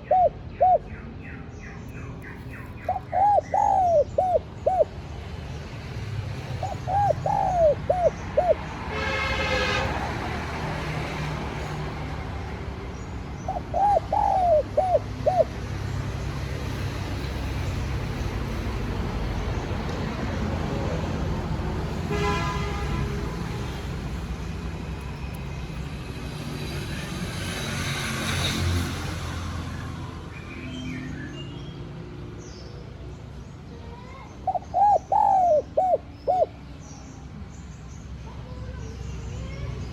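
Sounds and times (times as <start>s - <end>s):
dove cooing: 0.0s - 1.0s, 2.6s - 5.0s, 6.5s - 8.7s, 13.4s - 15.6s, 34.4s - 36.6s.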